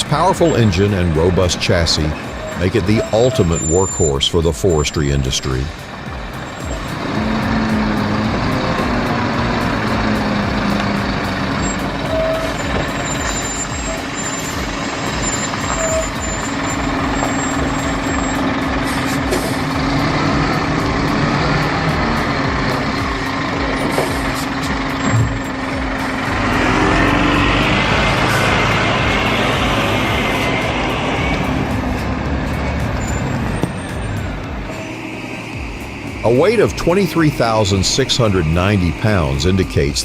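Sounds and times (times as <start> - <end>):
diesel truck engine droning: 0.0 - 40.0.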